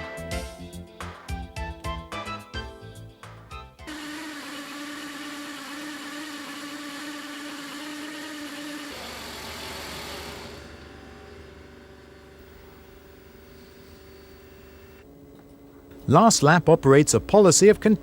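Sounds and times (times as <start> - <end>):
background music: 0.0 - 3.9
grinding machine motor whining: 3.9 - 15.0.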